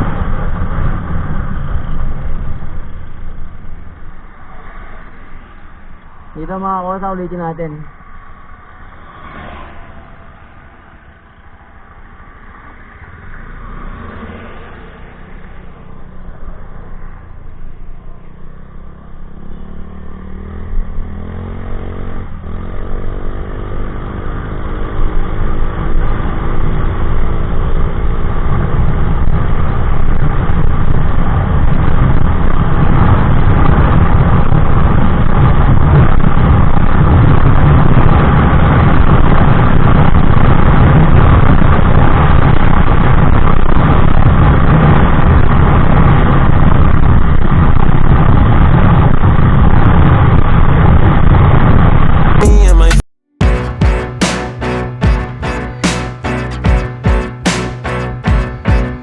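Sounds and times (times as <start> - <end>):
scooter engine accelerating: 9.4 - 32.4.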